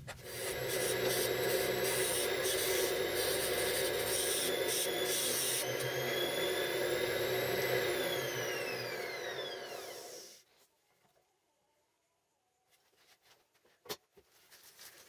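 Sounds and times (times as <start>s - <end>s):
electric motor whirring: 0.2s - 10.4s.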